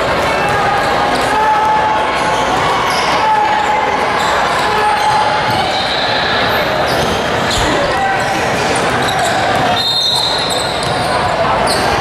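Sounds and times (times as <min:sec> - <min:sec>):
crowd and player chatter: 0:00.0 - 0:12.0
shoe squeaks: 0:04.2 - 0:07.9, 0:08.8 - 0:12.0.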